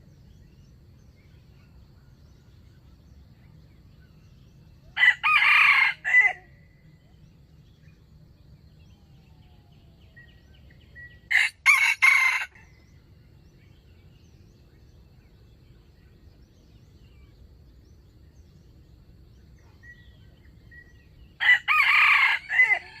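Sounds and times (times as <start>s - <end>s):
rooster crowing: 5.0s - 6.5s, 11.3s - 12.7s, 21.4s - 23.0s.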